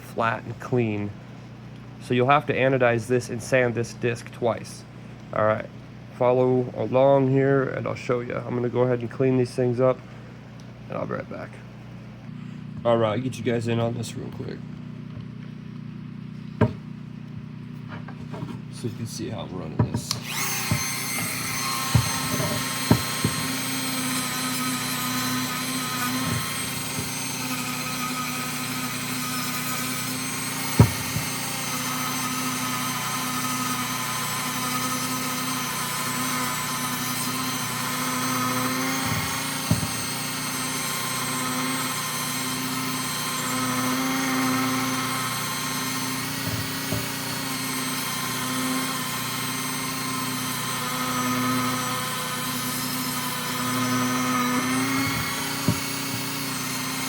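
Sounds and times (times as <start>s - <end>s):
rotary tool grinding metal: 17.7s - 57.0s.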